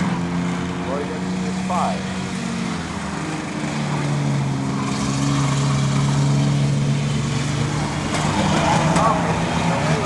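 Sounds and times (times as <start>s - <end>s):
racing truck engines: 0.0s - 10.0s.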